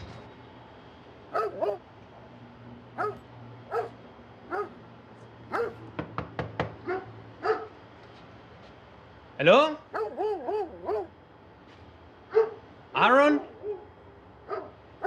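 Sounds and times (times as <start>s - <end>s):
dog barking: 1.3s - 1.8s, 3.0s - 4.8s, 5.5s - 5.8s, 6.8s - 7.8s, 9.9s - 11.1s, 12.3s - 12.7s, 13.3s - 14.8s.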